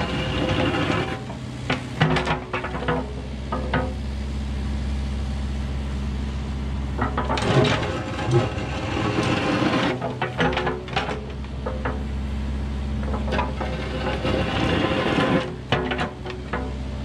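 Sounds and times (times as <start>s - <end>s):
excavator bucket scraping ground: 0.0s - 4.0s, 7.0s - 12.2s, 13.0s - 17.0s
excavator diesel engine running: 0.0s - 17.0s.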